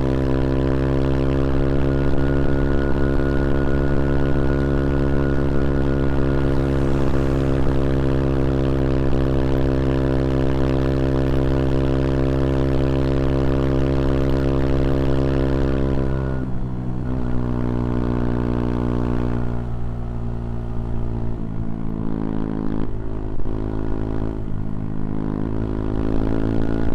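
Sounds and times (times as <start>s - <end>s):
single-cylinder engine running: 6.2s - 10.4s.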